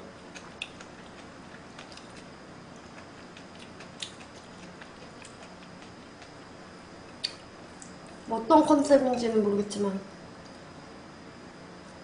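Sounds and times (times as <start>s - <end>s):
low steady hum: 0.0s - 12.0s
quiet chewing of noodles: 0.1s - 8.2s
wet mouth clicks and smacks: 7.2s - 8.0s.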